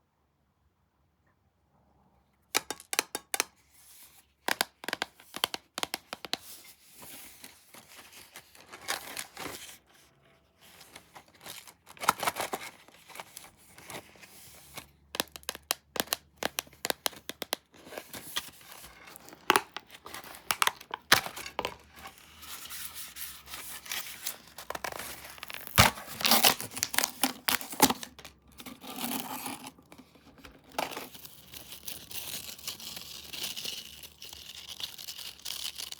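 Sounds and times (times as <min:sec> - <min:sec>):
snack packaging crinkling: 0:10.8 - 0:22.4, 0:23.8 - 0:30.0, 0:30.6 - 0:35.9.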